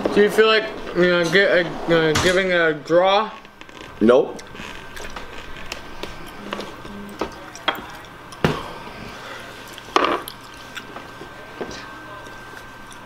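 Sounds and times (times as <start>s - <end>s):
chewing and mouth clicks: 4.4s - 8.4s, 9.6s - 11.0s, 12.2s - 13.0s.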